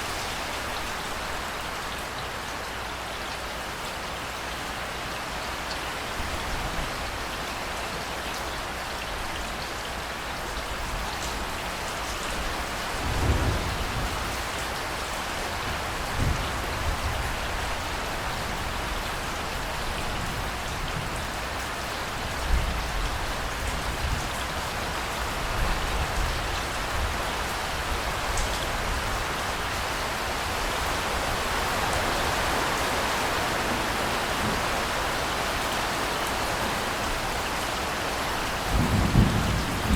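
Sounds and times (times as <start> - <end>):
heavy rain pattering: 0.0 - 39.9
distant thunder rumbling: 13.0 - 14.6, 38.6 - 39.9.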